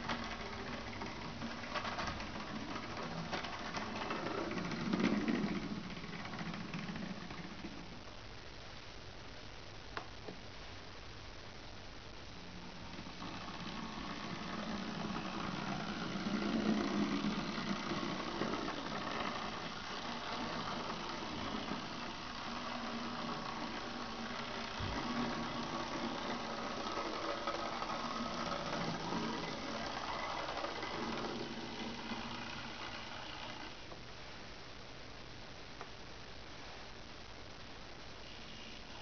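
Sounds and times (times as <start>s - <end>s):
model train motor whirring: 0.0s - 7.8s, 12.8s - 33.9s, 38.3s - 39.0s
wheels on rails: 0.0s - 8.0s, 12.6s - 34.0s.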